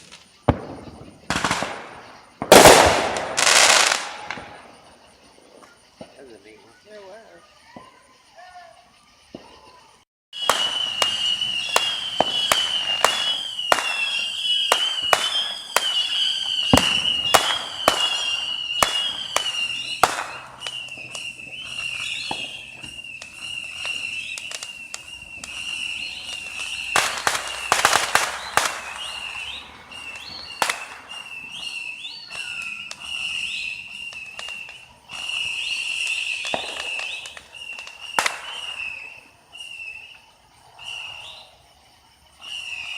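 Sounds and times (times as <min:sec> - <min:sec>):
fireworks bangs and crackles: 0:00.0 - 0:08.1, 0:09.2 - 0:41.7, 0:42.3 - 0:42.9
high wavering whistle: 0:10.4 - 0:41.6, 0:42.4 - 0:42.9.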